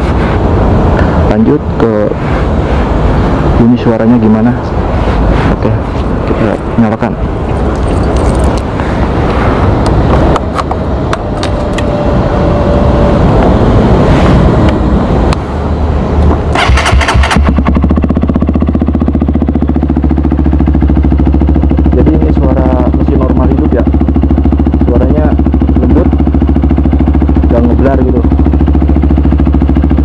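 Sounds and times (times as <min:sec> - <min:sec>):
motorcycle engine idling: 0:16.5 - 0:30.0.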